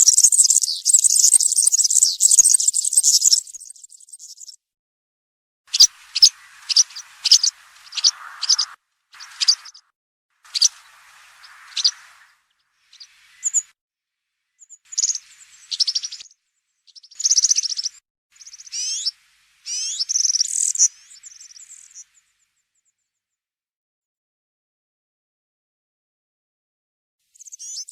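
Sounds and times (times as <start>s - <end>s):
small bird singing jingling notes: 0.0s - 4.6s, 5.7s - 9.8s, 10.5s - 13.7s, 14.5s - 23.0s, 27.3s - 27.9s.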